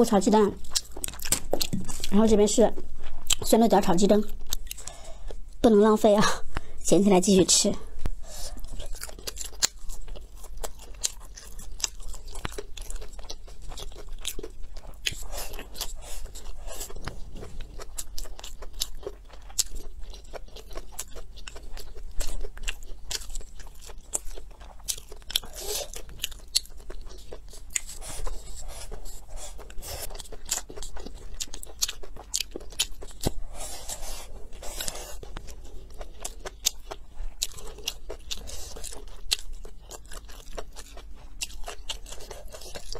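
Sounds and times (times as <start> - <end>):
close chewing with crunches: 0.0 - 5.6, 8.2 - 42.9.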